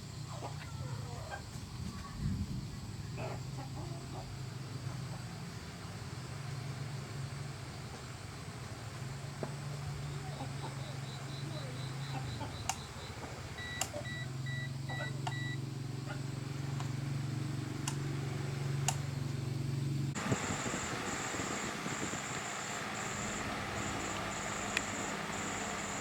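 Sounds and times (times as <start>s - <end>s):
low motor hum: 4.2s - 26.0s
sharp clicks: 12.6s - 12.9s, 18.8s - 19.1s, 23.9s - 25.1s
two-pitch beeps: 13.6s - 15.6s.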